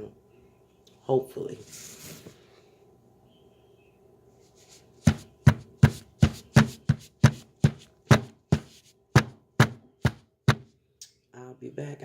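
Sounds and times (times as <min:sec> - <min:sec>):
thuds of packing a paper bag: 0:05.0 - 0:10.7.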